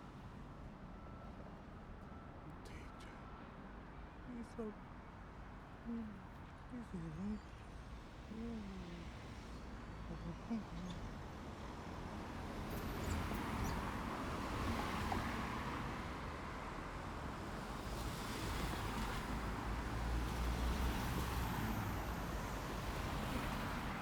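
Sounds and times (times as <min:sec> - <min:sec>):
road traffic driving past: 0:07.8 - 0:24.0.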